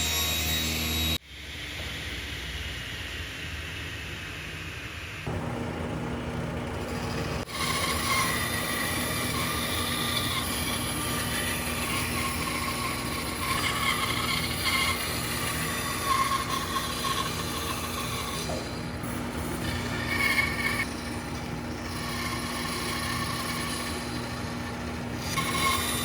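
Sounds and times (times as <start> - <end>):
power tool cutting wood: 0.0 - 1.2, 6.9 - 26.0.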